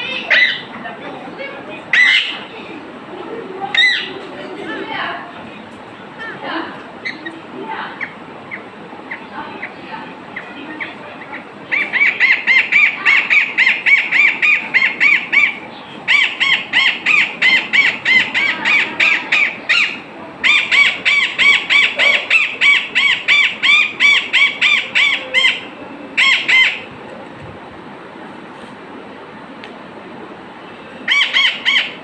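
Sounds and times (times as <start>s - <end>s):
bird calling rapidly: 0.0s - 0.8s, 1.9s - 2.6s, 3.7s - 4.2s, 7.0s - 26.9s, 31.0s - 32.0s.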